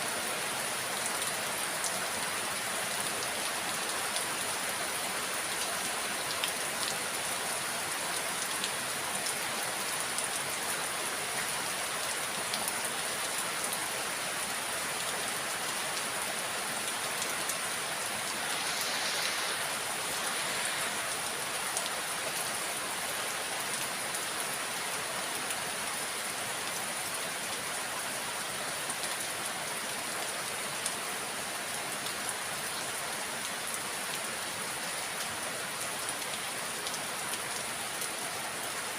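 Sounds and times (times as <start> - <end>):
rain falling: 0.0 - 38.9
raindrops pattering on surfaces: 1.0 - 28.0.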